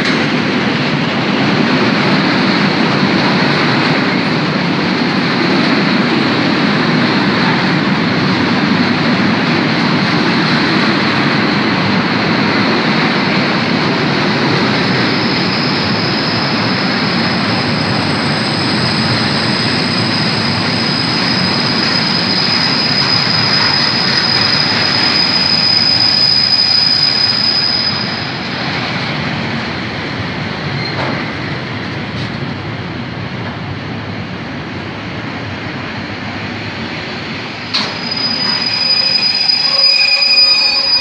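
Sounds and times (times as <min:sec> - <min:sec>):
freight train rolling: 0:00.0 - 0:41.0
wheels squealing: 0:14.5 - 0:28.4, 0:37.7 - 0:41.0.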